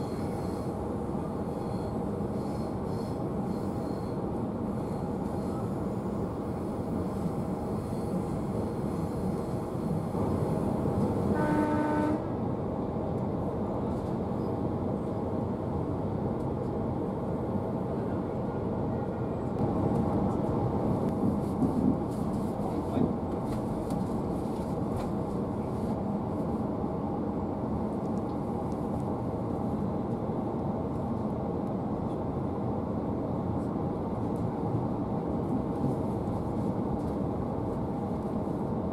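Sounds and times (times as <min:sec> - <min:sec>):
train horn blast: 0:11.3 - 0:12.4.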